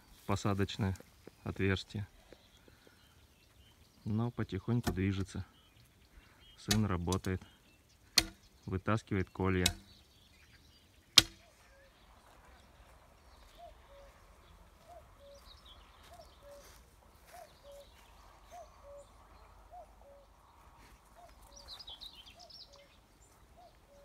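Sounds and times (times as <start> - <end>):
faint high bird chirps: 9.8 - 24.0.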